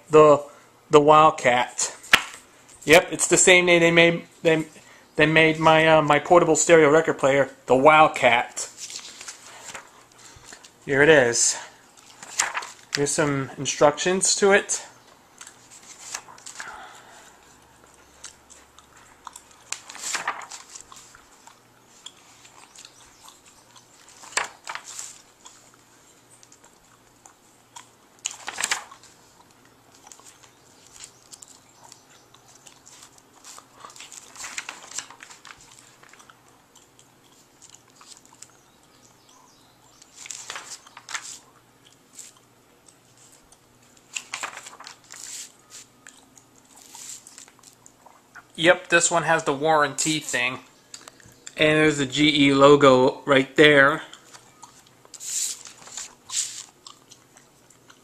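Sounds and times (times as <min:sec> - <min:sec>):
paper pages rustling: 0:08.7 - 0:10.8, 0:12.0 - 0:13.1, 0:15.5 - 0:16.7, 0:19.0 - 0:22.9, 0:24.0 - 0:25.4, 0:28.3 - 0:29.2, 0:29.9 - 0:31.6, 0:32.5 - 0:36.2, 0:40.0 - 0:41.5, 0:44.0 - 0:46.0, 0:46.7 - 0:47.8, 0:54.3 - 0:56.7.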